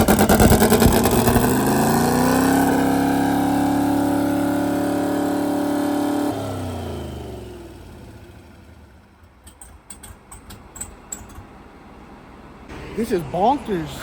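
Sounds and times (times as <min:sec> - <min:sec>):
engine revving: 0:00.0 - 0:09.1.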